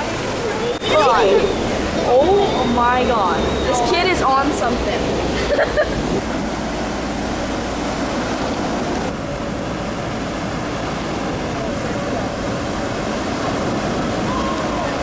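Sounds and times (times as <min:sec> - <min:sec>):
surf: 0:00.0 - 0:15.0
wind: 0:00.0 - 0:15.0.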